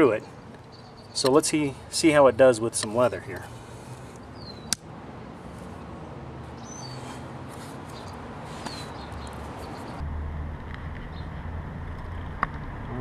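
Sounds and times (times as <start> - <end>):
falling bird chirps: 6.6 - 7.2, 7.9 - 10.0.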